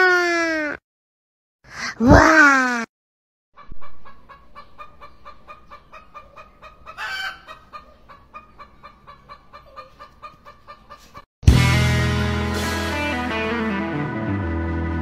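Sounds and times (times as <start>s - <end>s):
chicken clucking: 3.6s - 11.2s.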